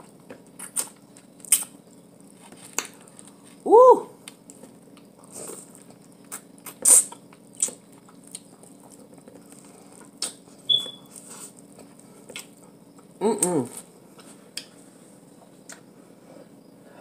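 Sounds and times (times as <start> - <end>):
chewing corn on the cob: 4.5 - 13.9.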